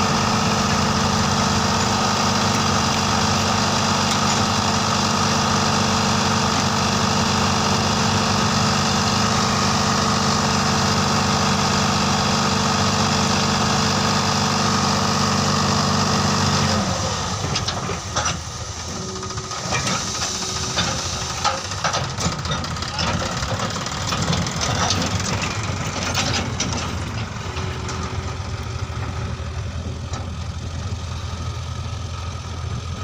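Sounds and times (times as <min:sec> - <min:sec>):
tractor diesel engine running: 0:00.0 - 0:33.0
irregular knocks and clatter: 0:20.8 - 0:28.1.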